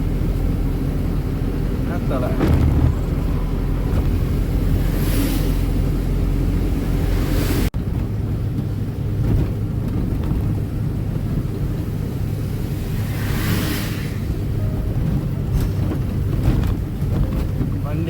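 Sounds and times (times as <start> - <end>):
road and wind noise: 0.0 - 18.0
truck engine rumble: 0.0 - 18.0
hiss: 12.8 - 14.4.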